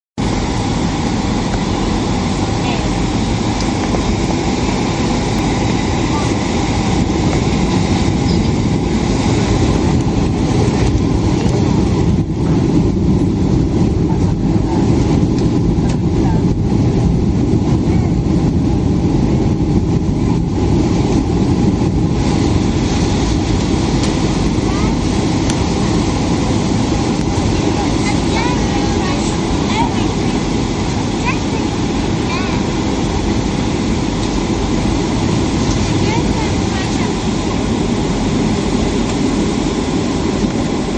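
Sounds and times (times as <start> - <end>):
jet airliner cabin rumble: 0.2 - 40.9.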